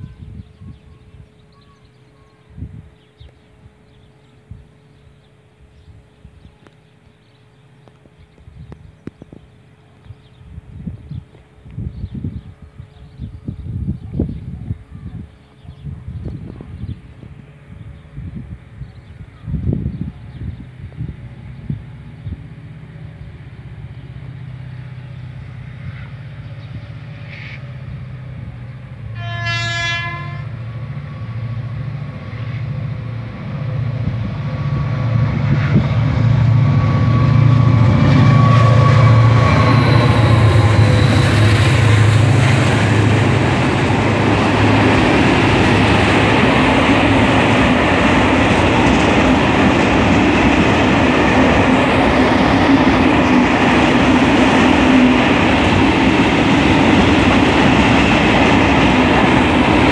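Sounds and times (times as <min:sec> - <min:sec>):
diesel locomotive engine drone: 0:00.0 - 0:59.9
locomotive horn blast: 0:29.1 - 0:30.6.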